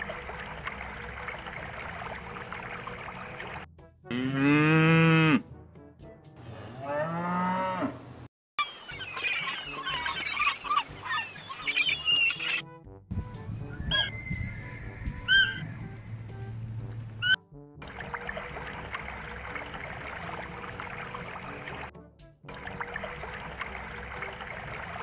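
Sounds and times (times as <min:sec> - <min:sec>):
water splashing: 0:00.0 - 0:03.7, 0:15.2 - 0:21.9, 0:22.5 - 0:25.0
cow mooing: 0:04.1 - 0:05.5, 0:06.7 - 0:08.0
high animal calls chattering: 0:08.6 - 0:12.6.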